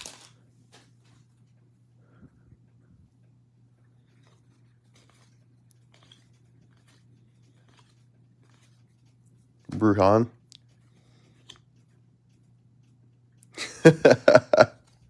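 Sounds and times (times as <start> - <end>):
trading cards clicking and rustling: 0.0 - 1.2, 4.0 - 11.8.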